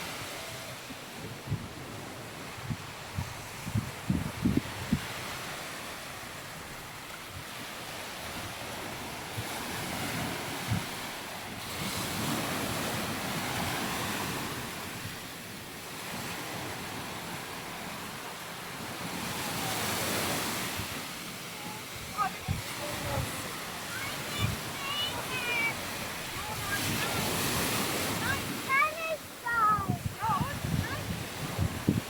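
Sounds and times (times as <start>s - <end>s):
wind on microphone: 0.0s - 5.6s, 8.2s - 11.1s, 21.6s - 32.0s
waves breaking on beach: 0.0s - 32.0s.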